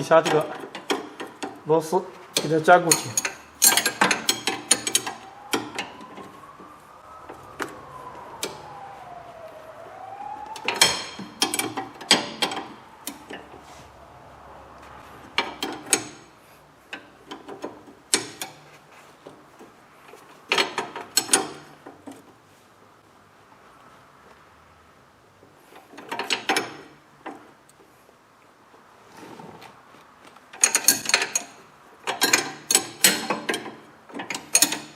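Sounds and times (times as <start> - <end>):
metal clinks: 2.9 - 5.1
faint rising and falling tone: 3.1 - 16.6.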